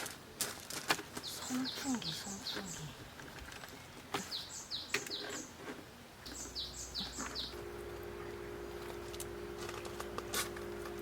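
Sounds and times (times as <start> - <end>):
bird chirping: 1.2 - 5.6, 6.2 - 8.8
electric fan humming: 6.3 - 11.0.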